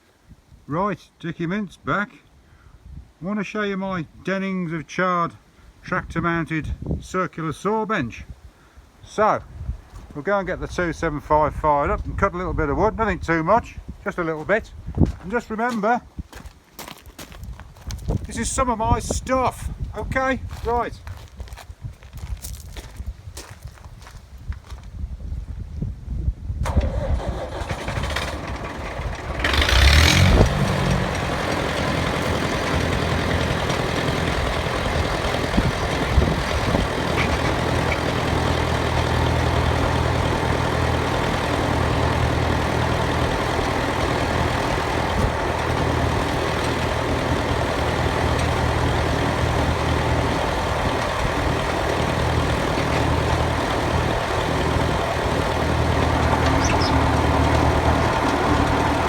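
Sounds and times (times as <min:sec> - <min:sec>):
diesel engine cranking and starting: 0:26.6 - 0:59.0
diesel engine idling: 0:26.9 - 0:59.0.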